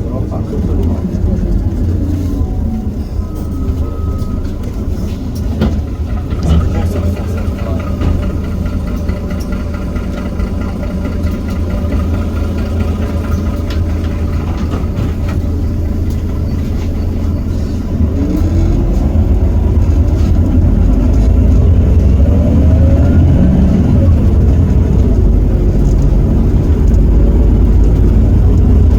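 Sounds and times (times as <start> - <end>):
bus diesel engine running: 0.0 - 28.9
rising engine whine: 0.0 - 28.9.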